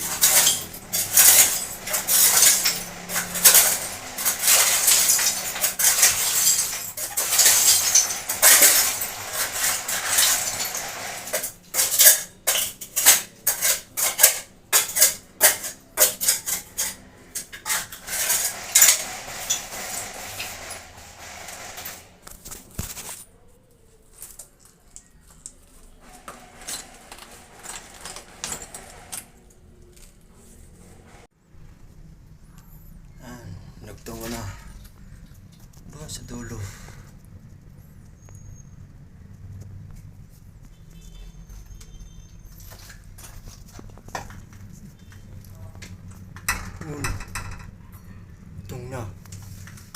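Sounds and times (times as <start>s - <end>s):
hand tools scraping: 0.0s - 23.3s, 25.8s - 31.3s
tools tapping on tile: 44.0s - 47.7s.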